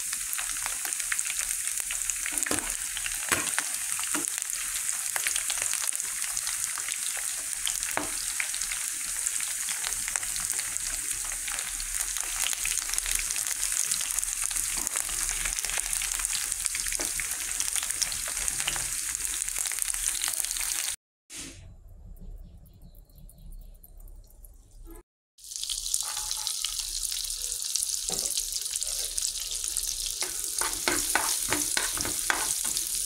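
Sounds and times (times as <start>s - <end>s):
chicken frying in hot oil: 0.0s - 21.0s, 24.4s - 33.0s
spatula scraping a pan: 30.2s - 33.0s.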